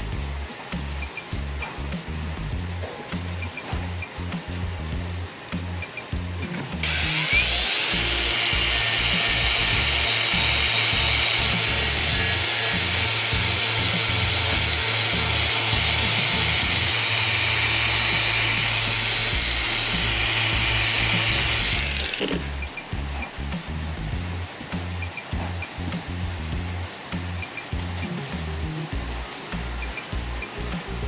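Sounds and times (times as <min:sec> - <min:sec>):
music with steady beat: 0:00.0 - 0:31.0
power tool whining: 0:06.8 - 0:22.8.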